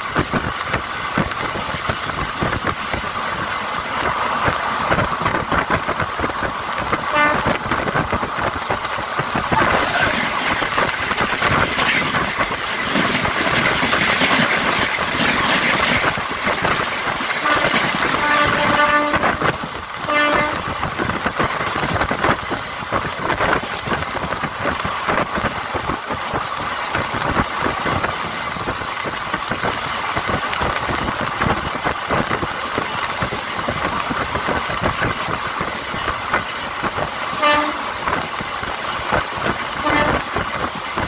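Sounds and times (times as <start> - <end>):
train running noise: 0.0 - 41.0
train horn: 7.0 - 7.6, 9.5 - 10.2, 17.4 - 20.7, 37.4 - 38.0, 39.7 - 40.4.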